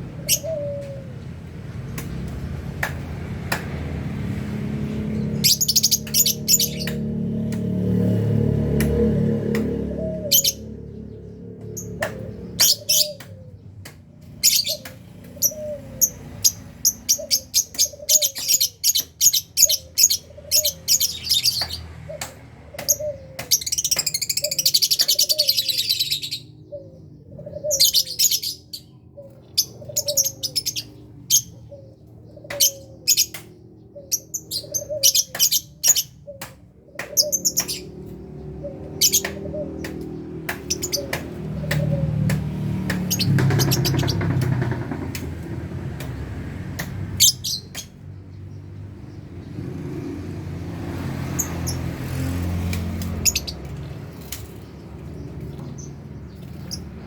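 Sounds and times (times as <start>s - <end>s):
lovebirds chirping: 4.7s - 7.5s, 9.8s - 45.2s, 50.9s - 57.0s.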